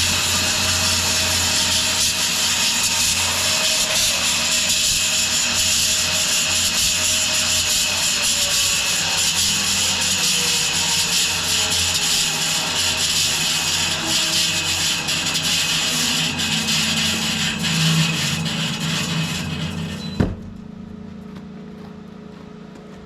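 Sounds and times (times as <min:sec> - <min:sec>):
low mill drive hum: 0:00.0 - 0:03.5, 0:12.5 - 0:23.0
bandsaw blade hissing through wood: 0:00.0 - 0:20.0.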